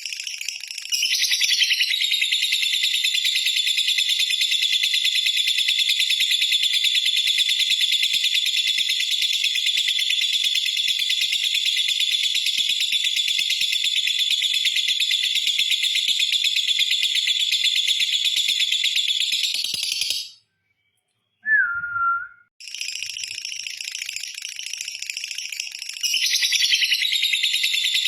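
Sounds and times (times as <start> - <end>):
short whistled note: 21.4 - 22.5.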